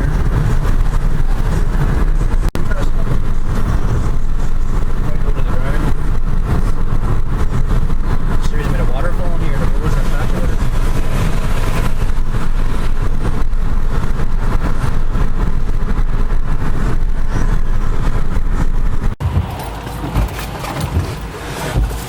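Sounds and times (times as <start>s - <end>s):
car driving on wet road: 0.0s - 22.0s.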